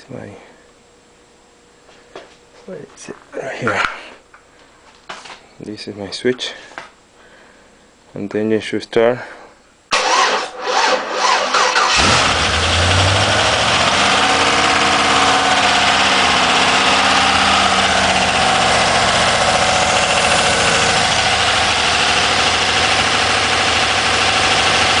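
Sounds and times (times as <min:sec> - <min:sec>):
engine cranking and idling: 0:09.9 - 0:25.0.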